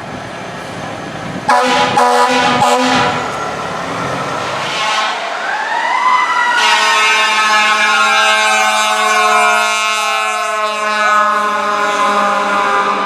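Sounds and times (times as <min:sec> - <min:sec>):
air horn blaring: 0:01.5 - 0:03.6, 0:04.2 - 0:05.4, 0:06.5 - 0:13.0
fire truck siren wailing: 0:01.5 - 0:13.0.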